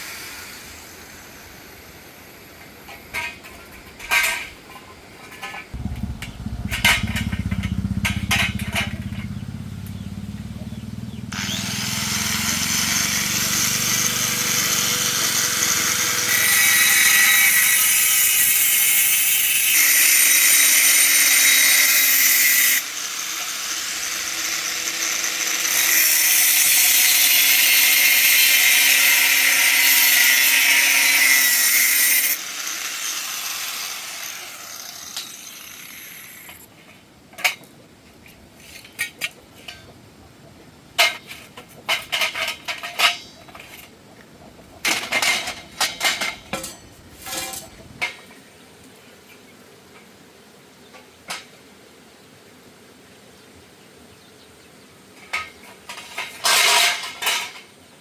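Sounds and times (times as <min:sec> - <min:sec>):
power tool grinding iron: 0:05.8 - 0:36.7, 0:44.5 - 0:48.0.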